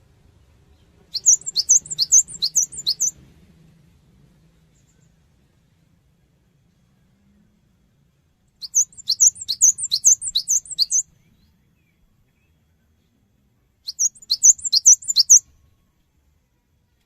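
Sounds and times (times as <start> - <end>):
bird singing high repeated notes: 1.1 - 3.2, 8.6 - 11.1, 13.9 - 15.4.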